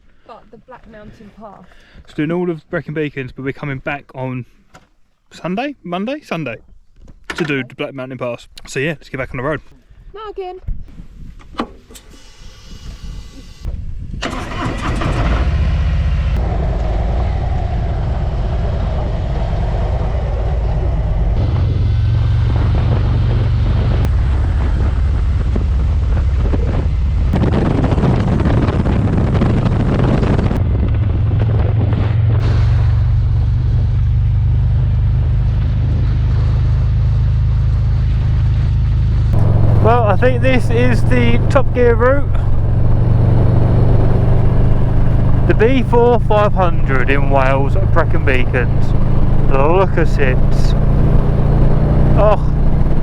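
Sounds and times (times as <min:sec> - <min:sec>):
motorcycle engine rumbling: 0:13.2 - 0:53.0.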